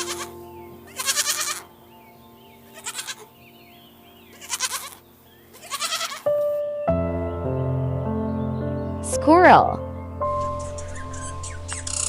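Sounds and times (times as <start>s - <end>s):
young goat bleating: 0.0s - 1.7s, 2.6s - 3.3s, 4.3s - 6.3s
soft background music: 0.0s - 12.0s.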